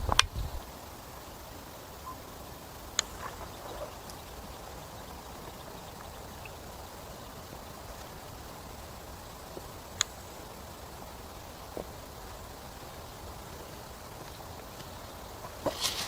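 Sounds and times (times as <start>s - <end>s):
sharp clicks: 0.0s - 0.4s
low steady background hiss: 0.0s - 16.0s.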